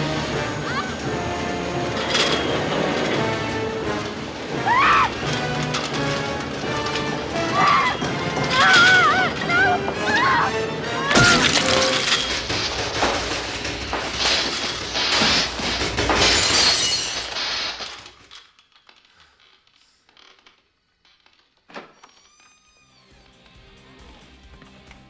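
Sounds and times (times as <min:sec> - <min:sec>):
crashing and shattering effects: 0:00.0 - 0:18.5.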